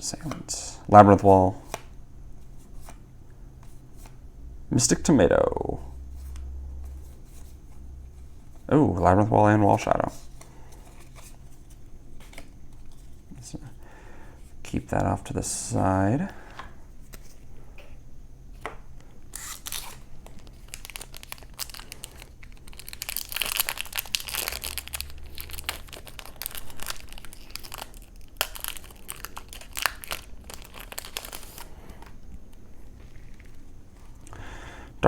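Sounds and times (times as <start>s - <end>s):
foil wrapper tearing and crinkling: 19.3s - 32.2s.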